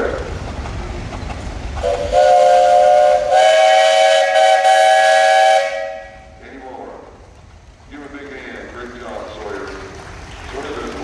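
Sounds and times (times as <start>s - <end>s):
steam whistle blasts: 1.8s - 6.3s.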